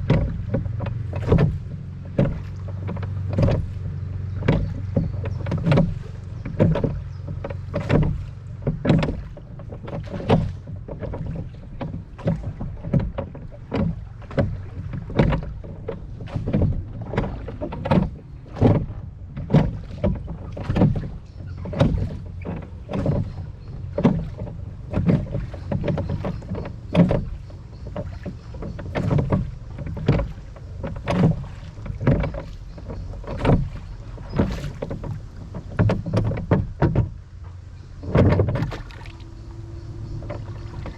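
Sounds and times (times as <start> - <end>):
oar strokes splashing and knocking: 0.0 - 40.9
wind rumble on microphone: 0.0 - 40.9.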